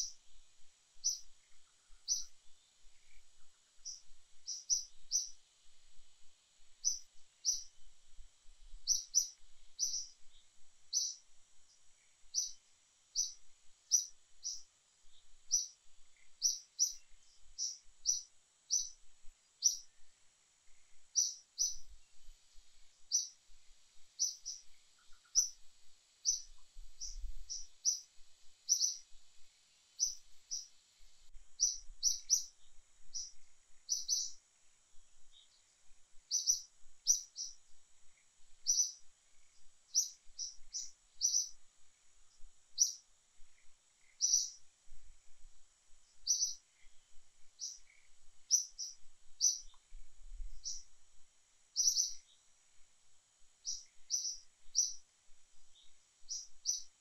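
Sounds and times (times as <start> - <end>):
small bird chirping: 0.0 - 52.8, 53.4 - 57.0
faint high hiss: 0.0 - 57.0.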